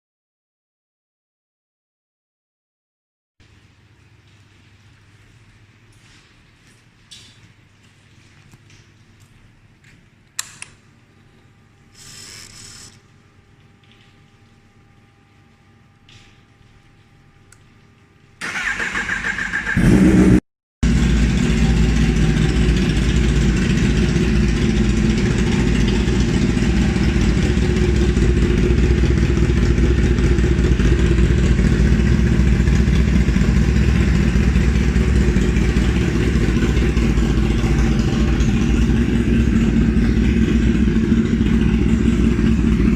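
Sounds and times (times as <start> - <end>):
starter motor cranking: 12.0 - 13.0, 18.4 - 19.9
motorcycle engine idling loudly: 19.8 - 42.9.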